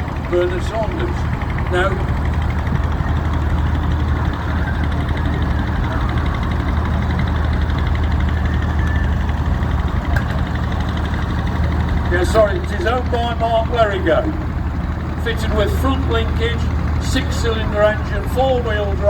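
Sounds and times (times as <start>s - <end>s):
diesel tractor engine running: 0.0s - 19.0s.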